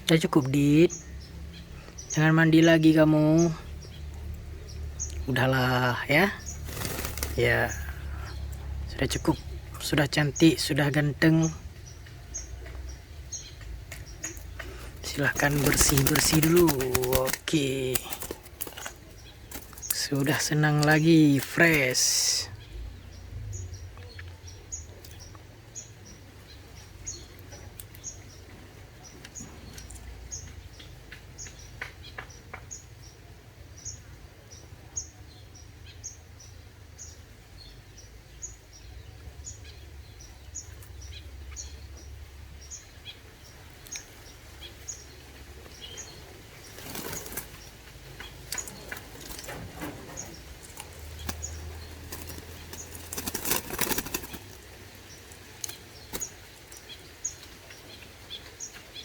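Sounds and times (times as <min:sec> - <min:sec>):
pigeons flapping wings: 0:06.6 - 0:07.9, 0:14.6 - 0:22.3, 0:46.6 - 0:54.9.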